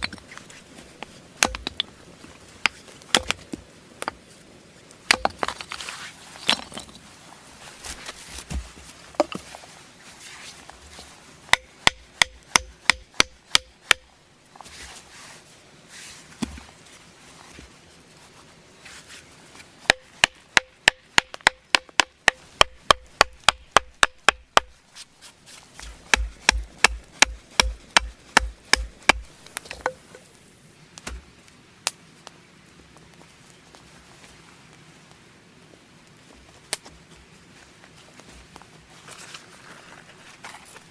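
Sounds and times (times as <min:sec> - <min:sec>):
wood struck with sharp knocks: 0:01.4 - 0:01.9, 0:02.6 - 0:04.2, 0:05.1 - 0:05.6, 0:11.5 - 0:14.1, 0:19.9 - 0:24.8, 0:25.8 - 0:30.2.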